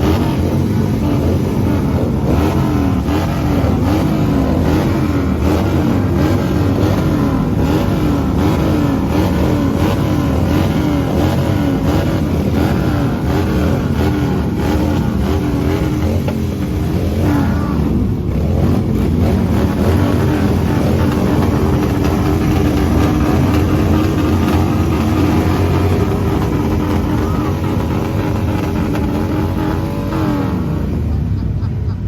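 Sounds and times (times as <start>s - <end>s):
motorcycle engine revving: 0.0s - 31.8s.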